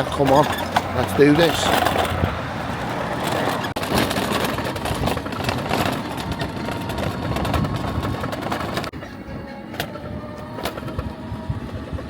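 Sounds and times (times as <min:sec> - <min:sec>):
motor scooter engine: 0:00.0 - 0:12.0
wind rushing over microphone: 0:00.0 - 0:12.0.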